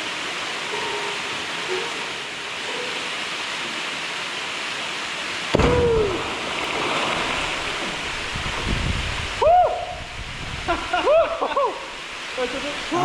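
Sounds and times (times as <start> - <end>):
waterfall rushing: 0.0 - 13.0
low thud with sliding tone: 5.5 - 6.1.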